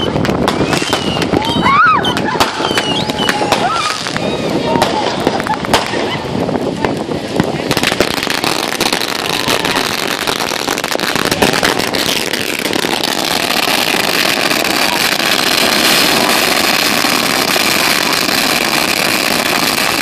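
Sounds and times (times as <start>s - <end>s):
falling whistle: 0.0s - 4.5s
firework fountain hiss and crackle: 0.0s - 20.0s.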